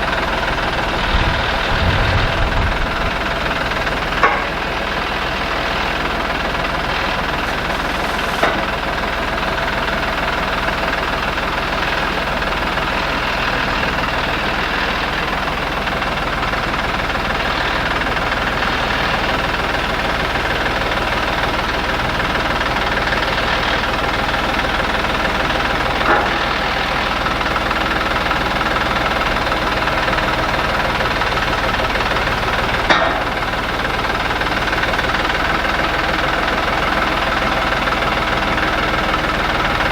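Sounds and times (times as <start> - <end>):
engine running: 0.0 - 39.9
sharp clanks: 4.2 - 4.7, 32.8 - 33.4.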